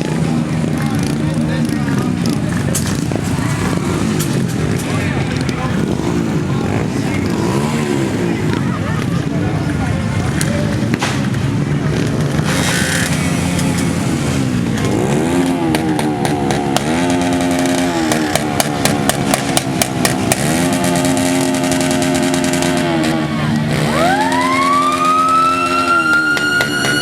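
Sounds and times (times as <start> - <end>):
motorcycle engines revving: 0.0 - 27.0
siren wailing: 23.7 - 27.0.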